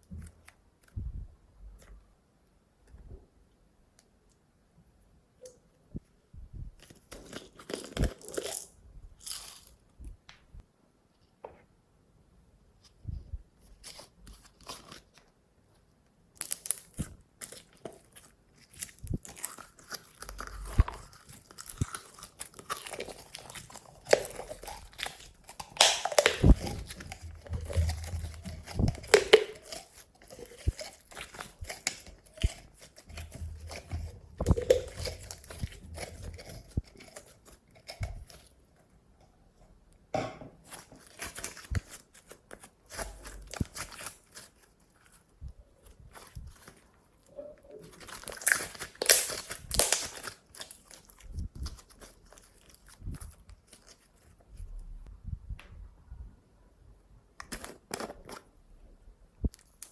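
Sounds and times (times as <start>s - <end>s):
slime crackling and squelching: 6.8s - 10.0s, 16.3s - 38.7s, 40.6s - 54.7s, 59.4s - 59.9s.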